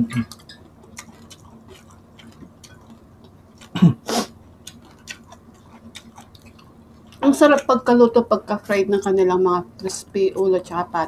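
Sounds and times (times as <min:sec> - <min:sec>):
chewing crispy food: 0:00.1 - 0:07.7
throat vocal noise: 0:03.6 - 0:04.3.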